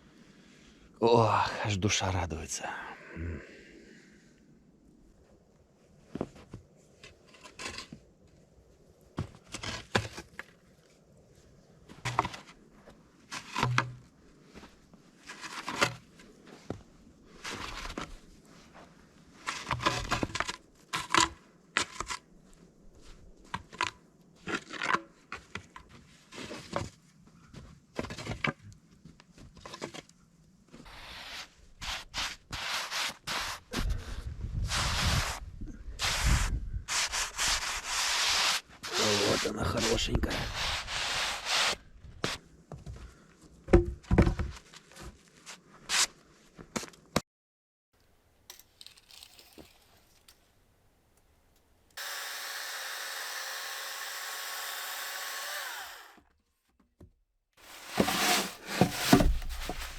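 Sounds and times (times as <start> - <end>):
tearing scraping and rustling: 48.8 - 50.3, 57.6 - 59.9.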